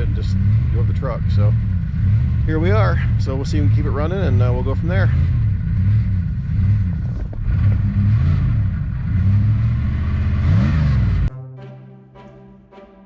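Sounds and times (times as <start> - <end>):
music: 11.3 - 13.0.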